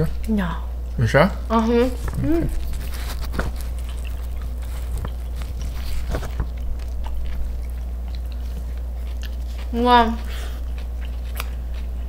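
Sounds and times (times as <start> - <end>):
steady low hum: 0.0 - 12.0
chewing food: 1.8 - 12.0.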